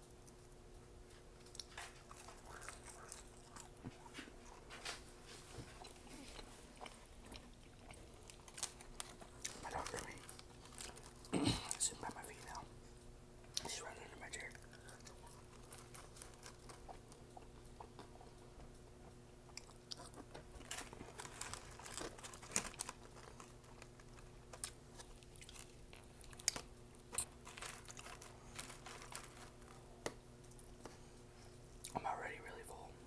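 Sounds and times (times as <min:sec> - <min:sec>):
person chewing and biting food: 0:01.4 - 0:04.8, 0:05.7 - 0:11.8, 0:14.5 - 0:31.0.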